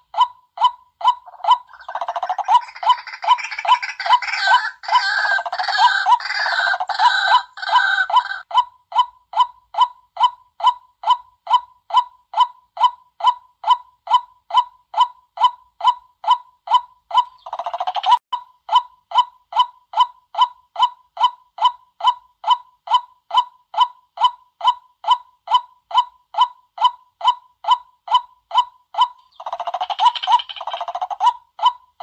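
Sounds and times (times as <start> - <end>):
waterhen croaking: 1.1 - 8.4.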